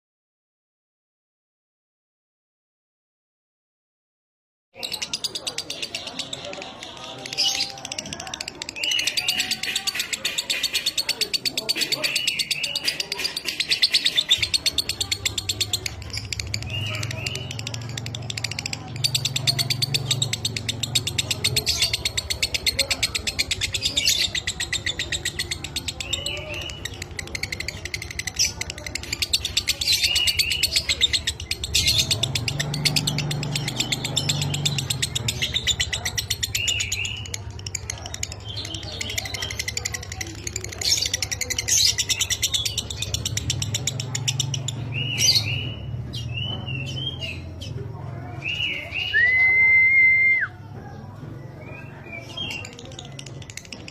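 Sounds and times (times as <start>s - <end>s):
lovebird chattering trill: 4.8s - 47.7s.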